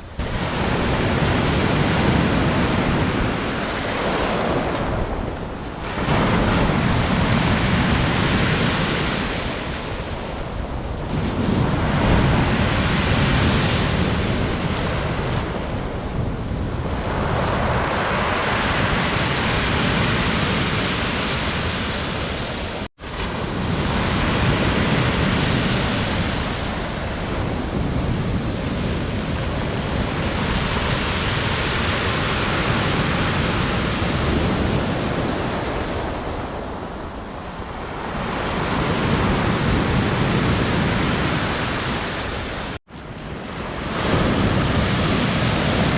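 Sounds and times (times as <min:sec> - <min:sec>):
waves breaking on shore: 0:00.0 - 0:45.9
wind on microphone: 0:00.0 - 0:45.9.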